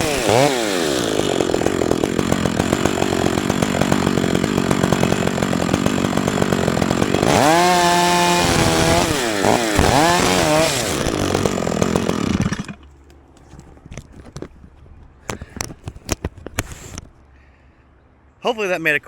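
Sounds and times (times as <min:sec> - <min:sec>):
chainsaw engine idling and revving: 0:00.0 - 0:12.9.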